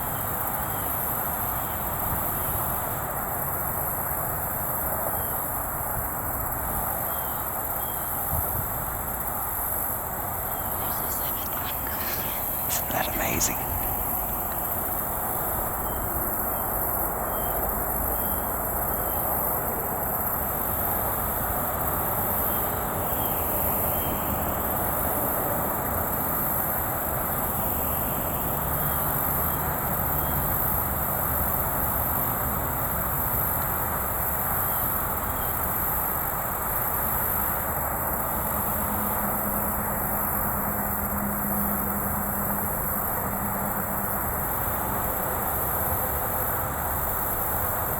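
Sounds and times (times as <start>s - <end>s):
high insect drone: 10.3s - 15.4s.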